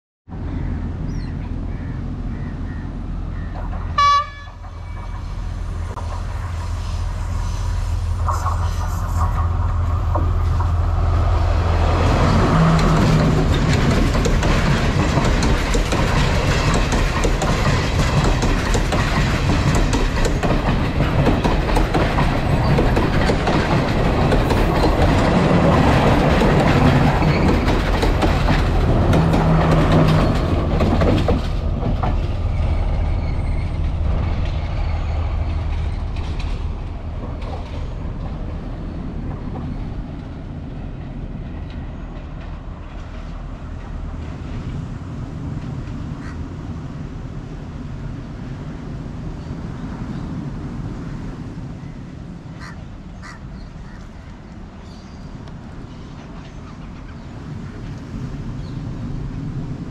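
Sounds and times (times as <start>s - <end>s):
train engine drone: 0.3s - 59.9s
train wheels clattering on rails: 3.2s - 7.0s, 8.2s - 47.0s, 52.6s - 59.9s
train horn blast: 3.9s - 5.1s.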